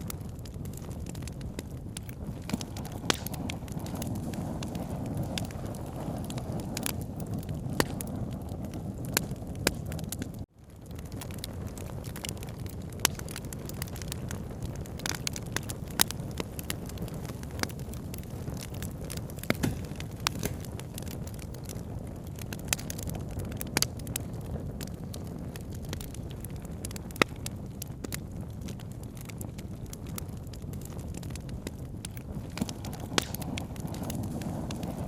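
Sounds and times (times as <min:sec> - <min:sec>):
burning wood popping: 0:00.0 - 0:35.0
campfire crackling: 0:00.0 - 0:35.0.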